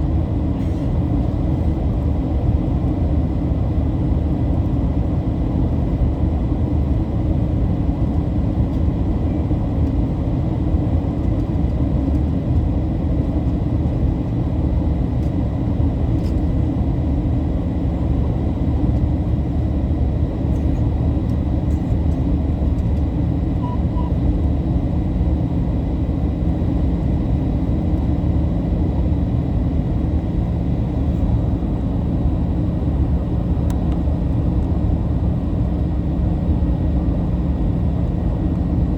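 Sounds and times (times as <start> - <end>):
jet engines rumbling in cabin: 0.0 - 38.9.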